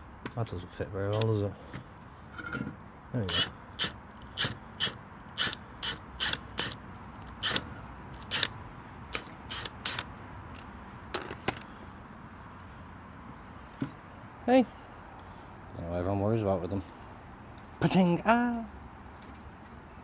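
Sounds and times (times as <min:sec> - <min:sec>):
socket ratchet clicking: 0:01.1 - 0:01.4, 0:03.3 - 0:10.7.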